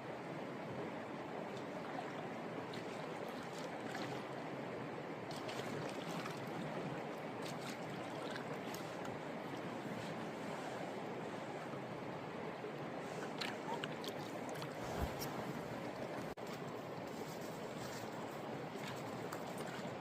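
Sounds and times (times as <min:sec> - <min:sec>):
creek water flowing: 0:00.0 - 0:20.0
small water splashes: 0:01.4 - 0:04.6, 0:05.2 - 0:10.6, 0:13.0 - 0:16.6, 0:18.6 - 0:20.0.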